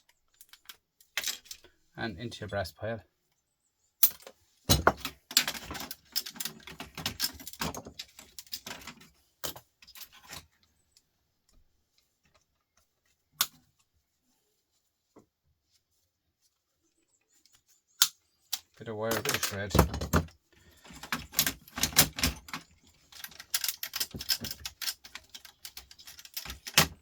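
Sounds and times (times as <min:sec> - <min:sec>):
metal scrap clinking and rattling: 0:19.0 - 0:27.0.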